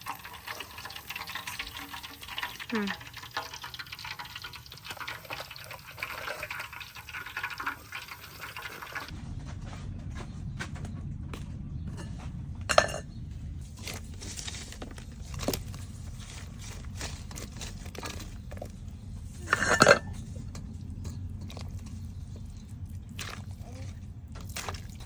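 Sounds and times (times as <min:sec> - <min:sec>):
steady low rumble: 0:09.1 - 0:24.4
dishes and utensils clinking: 0:11.9 - 0:13.2, 0:19.4 - 0:22.0
dishes clattering: 0:11.9 - 0:13.2, 0:19.4 - 0:21.6.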